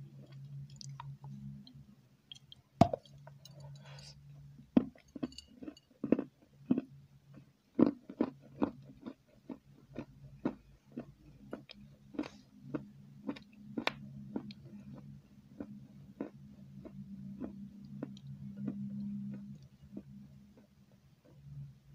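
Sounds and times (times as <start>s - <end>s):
chewing with mouth clicks: 4.8s - 21.5s.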